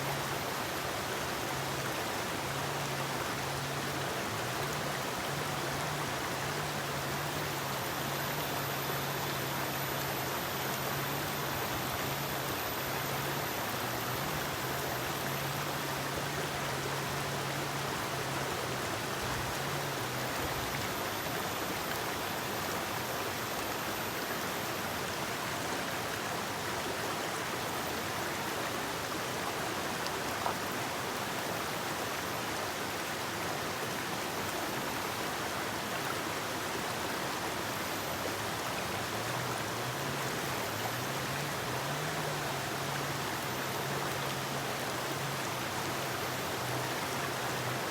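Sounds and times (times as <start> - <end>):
faint low drone: 0.0 - 25.5
river flowing: 0.0 - 47.9.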